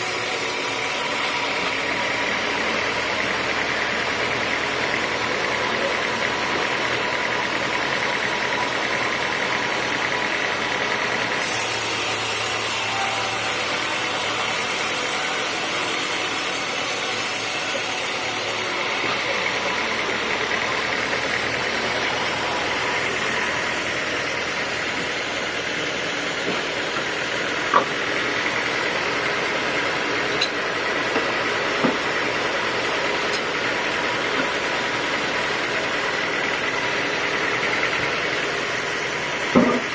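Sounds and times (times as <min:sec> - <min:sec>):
hiss: 0:00.0 - 0:01.3, 0:11.4 - 0:18.8
sawmill machinery sawing wood: 0:00.0 - 0:39.9.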